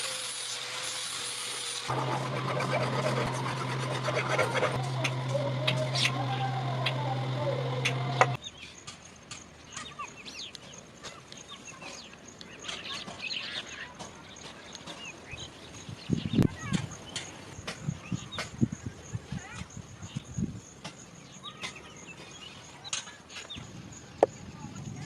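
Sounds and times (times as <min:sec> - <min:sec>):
power tool humming and clicking: 0:01.2 - 0:08.4
birds chirping: 0:02.0 - 0:25.0.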